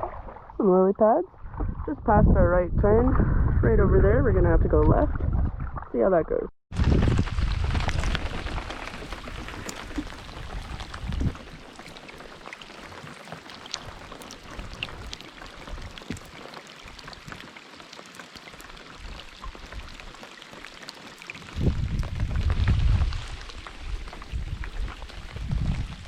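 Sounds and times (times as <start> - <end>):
low rumble: 0.0 - 11.4
rain falling on water: 6.8 - 26.0.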